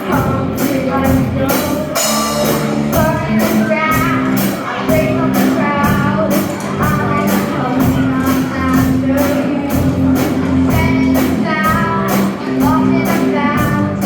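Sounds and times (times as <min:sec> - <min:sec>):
drum kit beat: 0:00.0 - 0:14.0
guitar: 0:00.0 - 0:14.0
person singing: 0:00.0 - 0:14.0.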